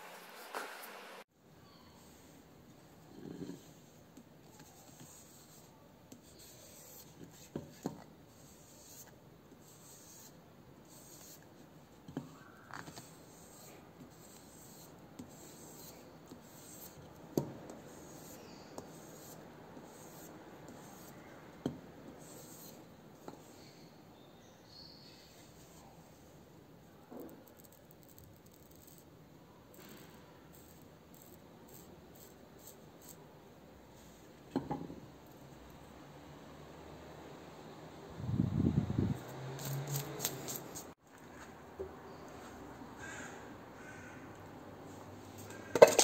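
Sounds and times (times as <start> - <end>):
hand rubbing or scraping: 39.1 - 41.5.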